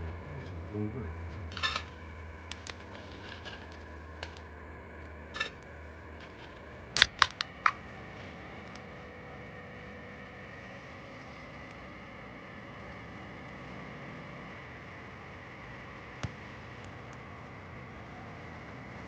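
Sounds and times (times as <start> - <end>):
low hum: 0.0 - 19.0
sharp clicks: 7.0 - 7.8.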